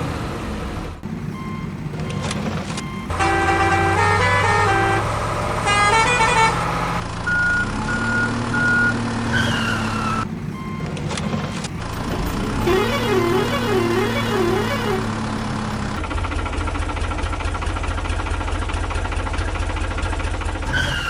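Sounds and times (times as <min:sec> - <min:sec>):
cartoon engine hum: 0:02.0 - 0:07.0, 0:12.4 - 0:16.0
melodic horn tunes: 0:03.1 - 0:07.0.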